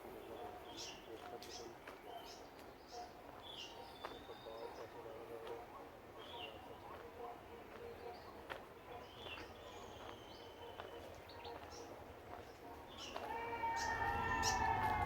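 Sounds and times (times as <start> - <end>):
siren-like wail: 13.2 - 15.0.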